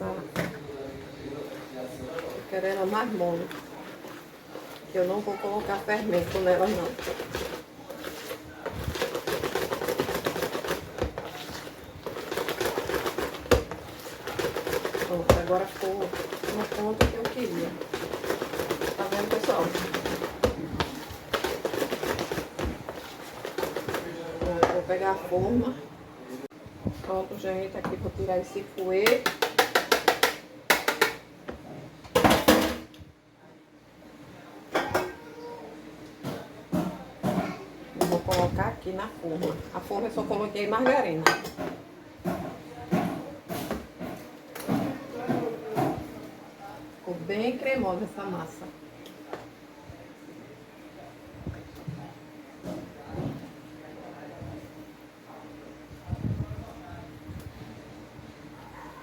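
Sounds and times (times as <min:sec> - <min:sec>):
whisk beating batter in bowl: 0:01.8 - 0:25.3.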